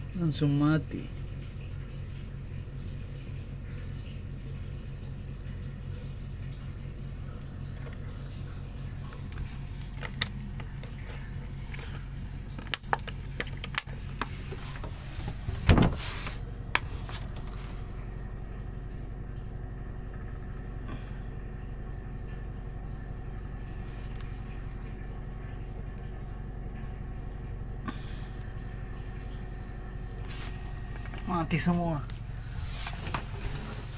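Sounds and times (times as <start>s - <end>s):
ship engine drone: 23.3s - 33.9s.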